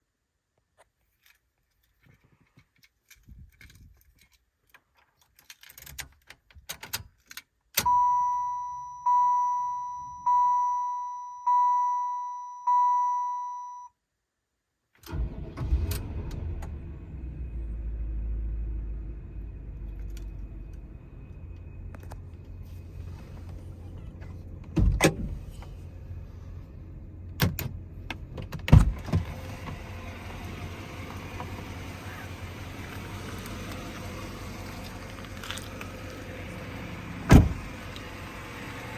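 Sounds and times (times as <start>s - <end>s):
dashboard warning chime: 7.8s - 13.9s
car engine cranking and idling: 15.0s - 38.9s.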